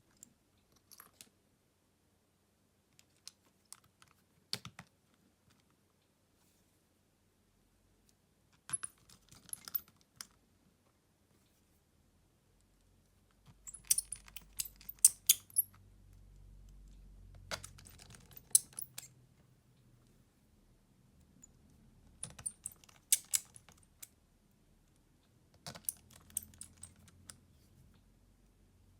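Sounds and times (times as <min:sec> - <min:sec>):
small tools clicking and tapping: 0:13.6 - 0:15.7, 0:17.5 - 0:19.1, 0:22.2 - 0:24.1, 0:25.6 - 0:27.4.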